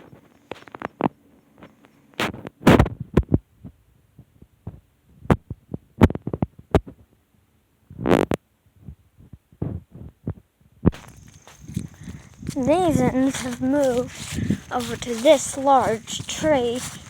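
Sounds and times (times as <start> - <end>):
footsteps on ground: 10.9 - 17.0.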